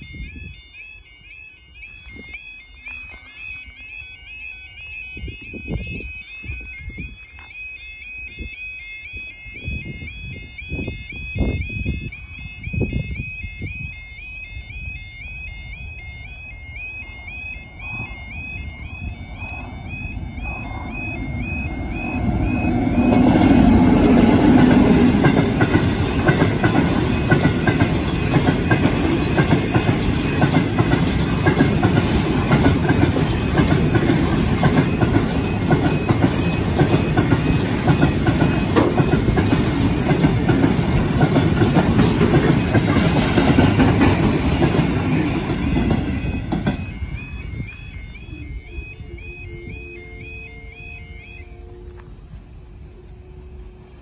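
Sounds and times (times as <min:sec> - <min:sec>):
diesel locomotive engine: 0:00.0 - 0:54.0
wagon wheels clattering on rails: 0:22.5 - 0:47.0.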